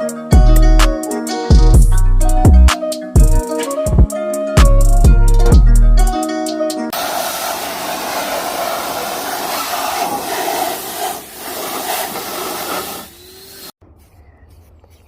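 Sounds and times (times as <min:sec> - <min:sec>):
spray paint hissing: 0:06.9 - 0:13.8.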